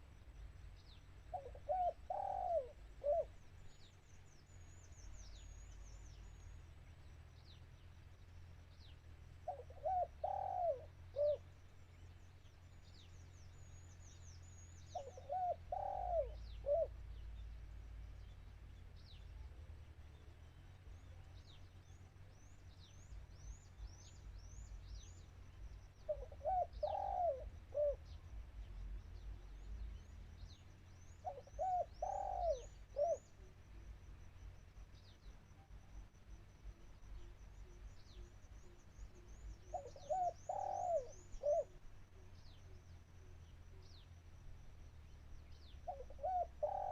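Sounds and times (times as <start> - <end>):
small birds chirping: 0.0 - 46.9
dove cooing: 1.3 - 3.9, 9.4 - 11.5, 14.5 - 17.2, 26.0 - 28.2, 30.4 - 33.6, 37.2 - 43.8, 45.8 - 46.9.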